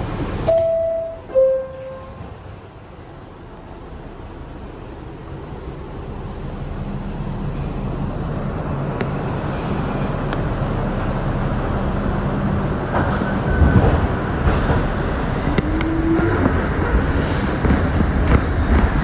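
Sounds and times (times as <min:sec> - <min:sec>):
subway car motor hum: 0:00.0 - 0:19.0
wheels clacking over rails: 0:09.5 - 0:19.0.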